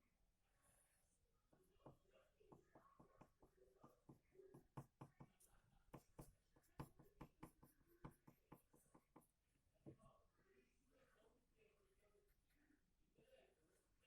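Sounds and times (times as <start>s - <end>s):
drawing tool scratching paper: 3.0s - 9.3s.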